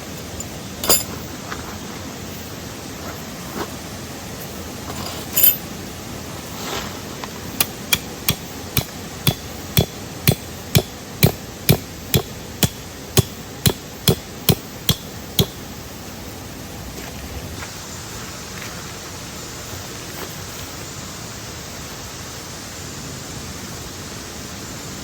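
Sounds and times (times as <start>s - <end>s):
hammer striking metal stake: 7.6s - 15.6s
sharp knock: 8.3s - 15.6s.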